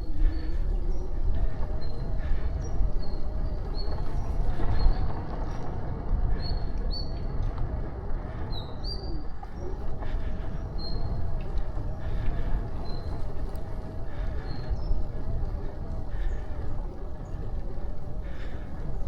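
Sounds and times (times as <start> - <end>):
wind rumbling on microphone: 0.0 - 19.0
bicycle tyre noise: 7.4 - 19.0.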